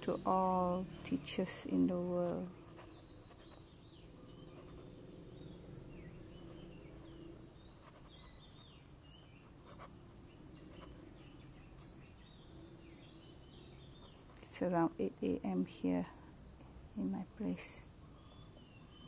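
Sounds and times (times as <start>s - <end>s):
low steady background hum: 0.0s - 19.0s
bird chirps: 2.4s - 14.6s.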